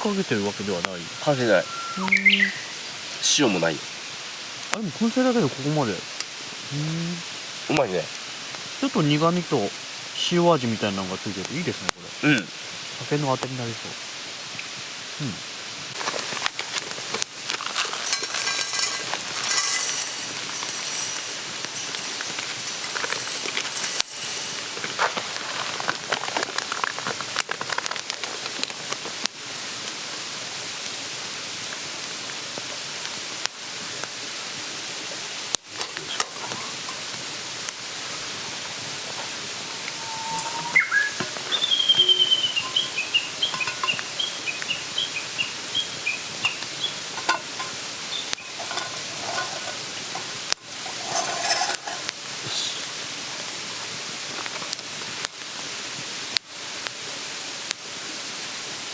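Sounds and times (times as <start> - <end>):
wood fire crackling: 0.0 - 58.2
bird chirping: 1.1 - 2.9, 39.9 - 47.1, 48.0 - 48.6
stream rushing: 15.9 - 27.8, 33.9 - 54.5.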